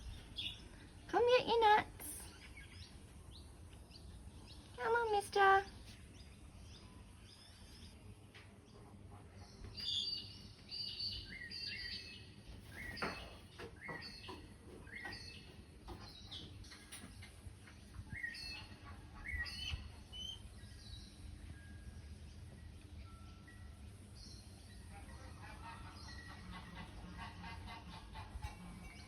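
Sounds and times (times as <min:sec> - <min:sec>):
birds chirping and whistling: 0:09.4 - 0:21.6.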